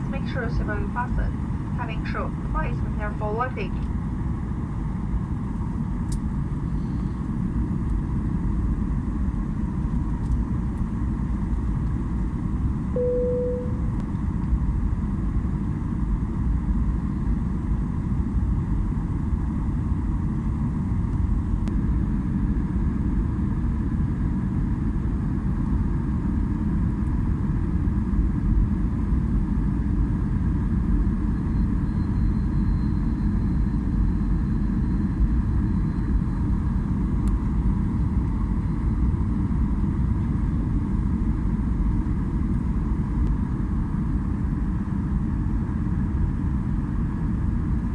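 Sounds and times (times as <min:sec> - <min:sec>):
jet engines rumbling in cabin: 0:00.0 - 0:47.9.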